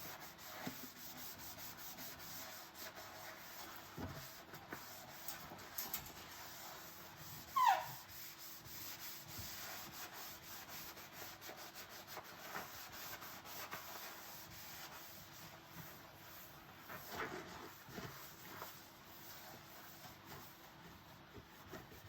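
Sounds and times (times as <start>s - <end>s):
sponge scrubbing dishes: 0.0s - 22.0s
wet dishware squeak: 7.6s - 8.0s.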